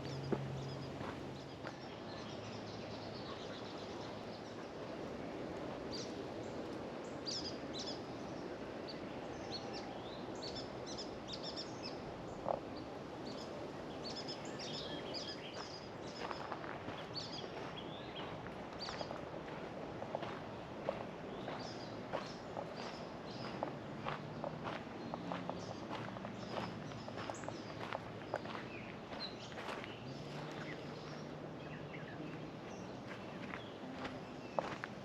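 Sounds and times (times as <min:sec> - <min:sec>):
small birds chirping: 0:08.9 - 0:19.6, 0:20.2 - 0:35.0.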